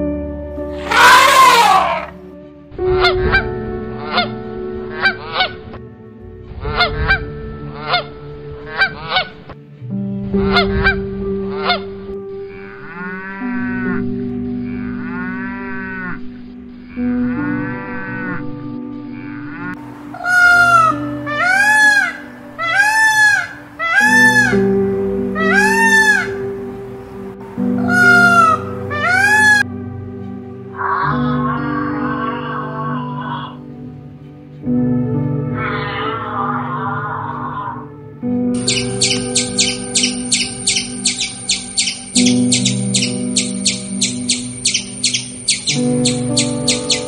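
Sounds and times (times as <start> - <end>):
calf bawling: 0.7 - 2.2, 19.2 - 24.8, 25.4 - 26.5, 27.7 - 29.7, 38.6 - 47.0
elephant trumpeting: 0.7 - 2.2, 19.5 - 24.7, 25.4 - 26.4, 27.8 - 29.7, 38.6 - 47.0
peacock calls: 0.7 - 2.2, 6.7 - 9.5, 11.5 - 14.0, 19.1 - 26.6, 27.7 - 29.7, 38.6 - 47.0.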